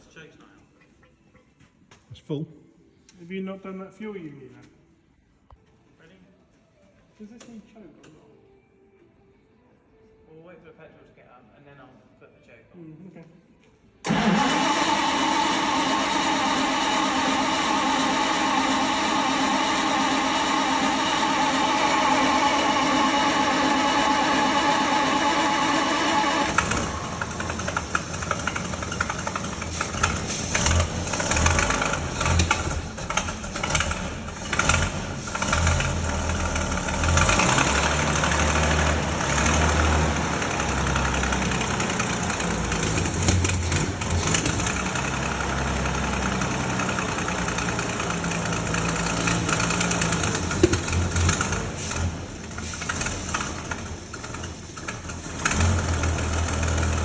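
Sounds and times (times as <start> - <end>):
petrol engine running roughly: 14.1 - 57.0.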